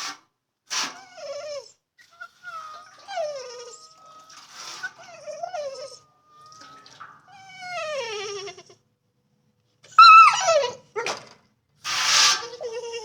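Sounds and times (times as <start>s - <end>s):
dog whining: 0.9s - 8.8s, 9.9s - 11.2s, 12.2s - 13.0s.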